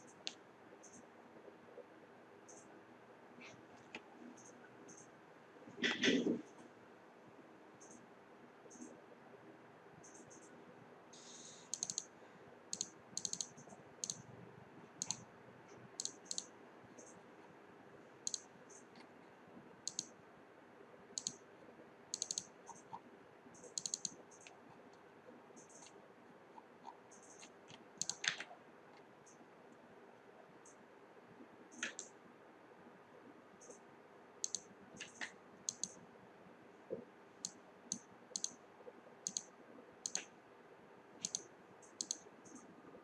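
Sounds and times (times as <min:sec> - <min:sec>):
faint steady hum: 0:00.0 - 0:43.0
sharp high-pitched clicks: 0:11.6 - 0:12.1, 0:12.7 - 0:14.3, 0:15.0 - 0:15.3, 0:16.0 - 0:17.2, 0:18.2 - 0:18.9, 0:19.9 - 0:20.2, 0:21.2 - 0:21.4, 0:22.1 - 0:23.0, 0:23.6 - 0:24.6, 0:27.1 - 0:28.5, 0:31.7 - 0:32.1, 0:34.4 - 0:36.0, 0:37.4 - 0:38.6, 0:39.2 - 0:40.3, 0:41.2 - 0:42.7.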